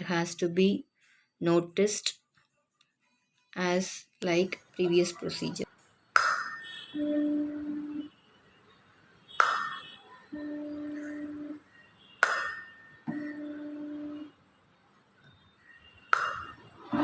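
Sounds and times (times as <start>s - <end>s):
tuning fork pure hum: 6.4s - 8.2s, 10.3s - 11.8s, 12.6s - 14.4s.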